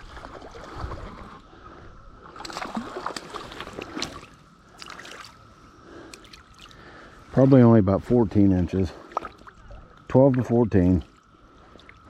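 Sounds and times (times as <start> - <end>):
water splashing: 0.0 - 1.4, 2.2 - 5.5
flowing water: 0.0 - 1.6, 2.2 - 7.1.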